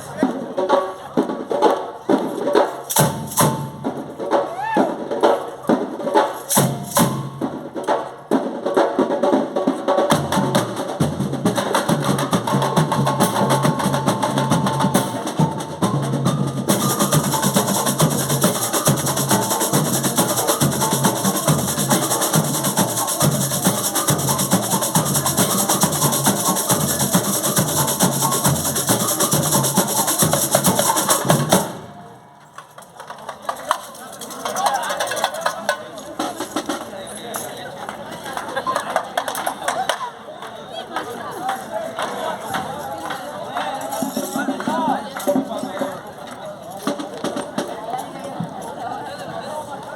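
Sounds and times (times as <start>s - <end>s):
percussion steady beat: 0.0s - 49.0s
band playing: 10.2s - 32.4s.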